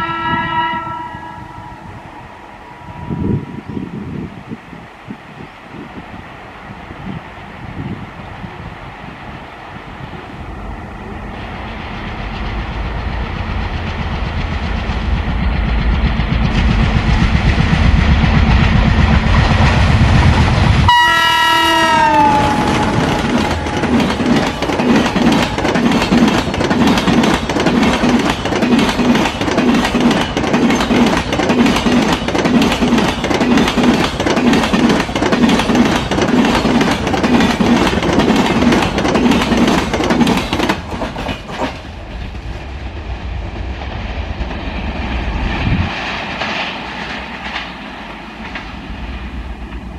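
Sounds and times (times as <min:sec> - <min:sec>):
train horn: 0:00.0 - 0:03.8, 0:20.9 - 0:24.0
locomotive engine rumble: 0:08.2 - 0:46.0
wheels clacking over rail joints: 0:21.5 - 0:42.8, 0:45.9 - 0:49.9.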